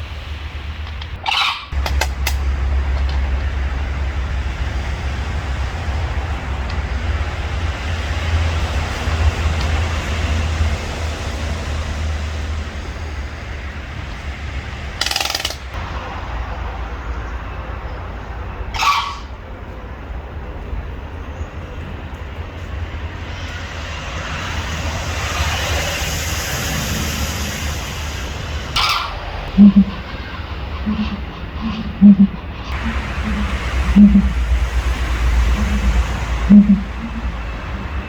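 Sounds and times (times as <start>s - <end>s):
harsh bird calls: 0.0s - 20.1s, 28.3s - 38.0s
low outdoor rumble: 0.0s - 38.0s.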